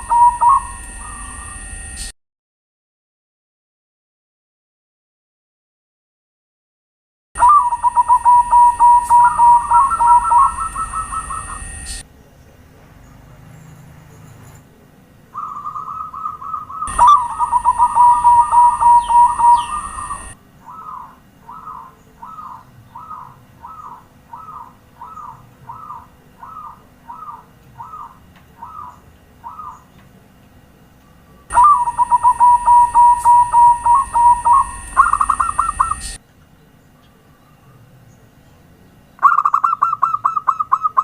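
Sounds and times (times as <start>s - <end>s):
dove cooing: 0.0s - 1.5s, 7.4s - 12.0s, 15.3s - 29.9s, 31.5s - 36.2s, 39.2s - 41.0s.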